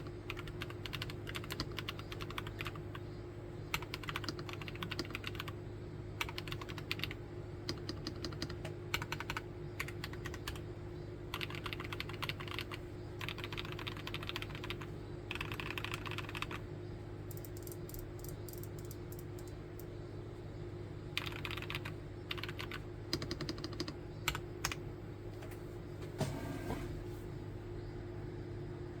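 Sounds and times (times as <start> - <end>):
mechanical keyboard typing: 0.0 - 3.0, 3.7 - 5.6, 6.2 - 10.6, 11.3 - 16.6, 17.3 - 19.9, 21.2 - 24.8.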